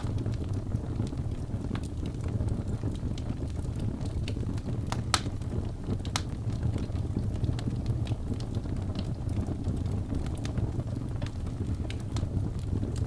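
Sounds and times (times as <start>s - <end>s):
fire rumbling: 0.0s - 13.0s
logs crackling and popping: 0.0s - 13.0s.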